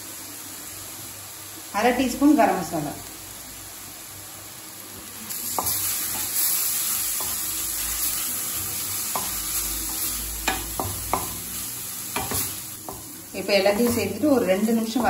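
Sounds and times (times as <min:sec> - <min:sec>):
vegetables sizzling in a pan: 0:00.0 - 0:15.0
spatula scraping and tapping pan: 0:05.5 - 0:06.5, 0:07.1 - 0:07.6, 0:09.0 - 0:14.3.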